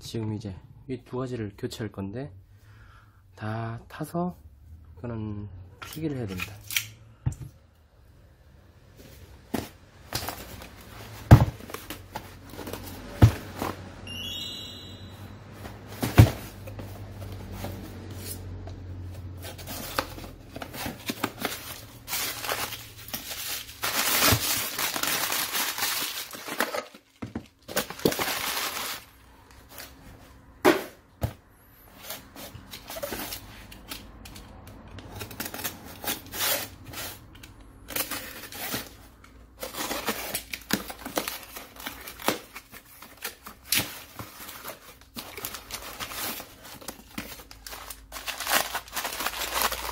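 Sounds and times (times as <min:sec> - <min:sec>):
crinkling rustling noise: 0:19.0 - 0:30.5, 0:34.8 - 0:49.9
clicks and knocks of parts handled: 0:32.6 - 0:35.7.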